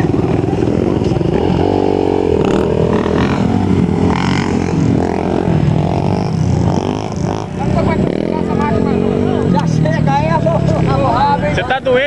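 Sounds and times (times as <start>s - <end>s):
off-road motorcycle engine revving: 0.0s - 12.0s.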